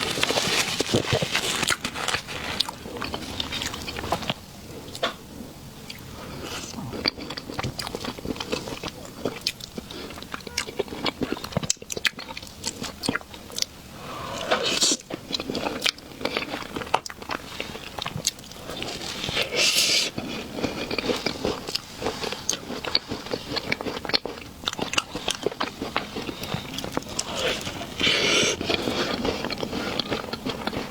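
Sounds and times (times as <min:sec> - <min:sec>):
person chewing soft food: 0:00.0 - 0:30.9.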